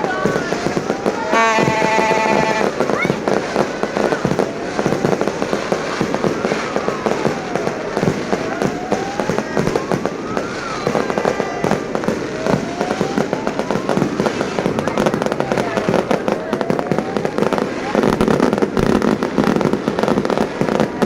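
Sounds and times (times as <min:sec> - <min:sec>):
slow wailing tone: 0:00.0 - 0:02.9, 0:05.6 - 0:18.6
fireworks bangs and crackles: 0:00.0 - 0:21.0.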